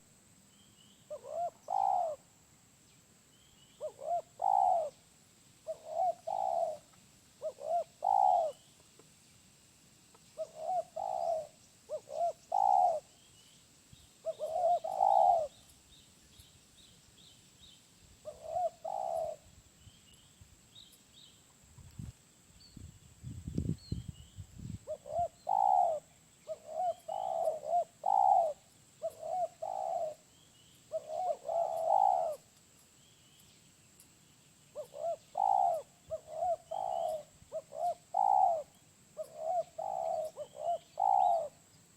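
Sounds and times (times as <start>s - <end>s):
small birds chirping: 0.0s - 9.5s, 10.1s - 41.9s
dove cooing: 1.1s - 2.3s, 3.8s - 5.0s, 5.6s - 8.6s, 10.4s - 13.2s, 14.2s - 15.6s, 18.2s - 19.5s, 24.8s - 30.3s, 30.9s - 32.5s, 34.7s - 41.6s.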